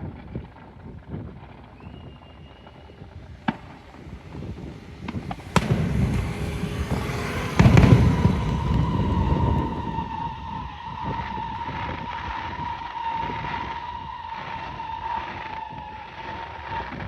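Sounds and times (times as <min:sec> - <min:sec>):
fireworks bangs: 0:00.2 - 0:16.9
steady tone: 0:03.1 - 0:10.8.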